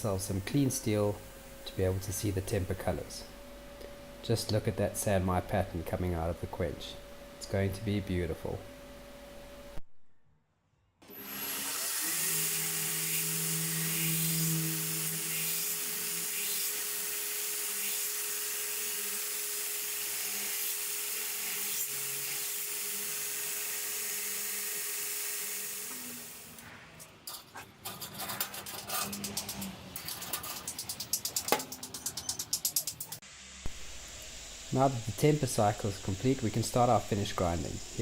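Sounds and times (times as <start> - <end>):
motor humming: 11.0 - 18.1
grinder belt hissing on steel: 11.2 - 26.6, 32.9 - 38.0
scattered clicks: 29.0 - 33.2.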